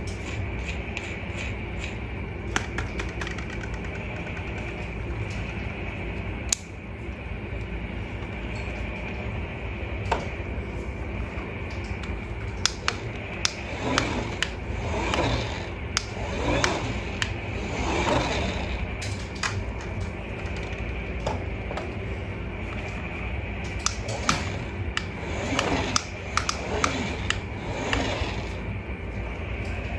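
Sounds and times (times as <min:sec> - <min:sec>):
clicks and rattles: 0:02.5 - 0:05.4, 0:23.7 - 0:28.6
toy motor hum: 0:12.6 - 0:19.6, 0:23.8 - 0:28.6.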